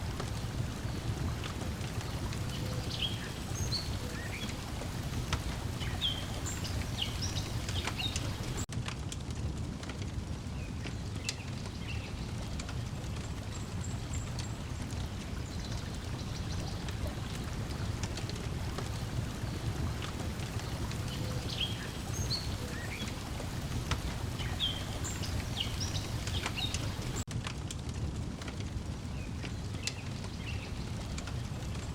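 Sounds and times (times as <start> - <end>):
breeze: 0.0 - 8.7, 10.4 - 27.3
waves lapping: 0.0 - 8.7, 12.8 - 27.3
wood fire crackling: 0.0 - 31.9.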